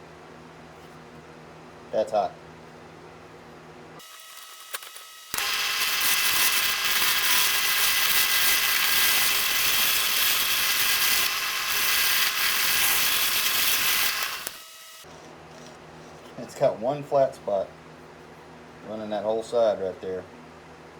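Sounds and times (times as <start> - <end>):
wood lathe scraping hiss: 5.3 - 15.1.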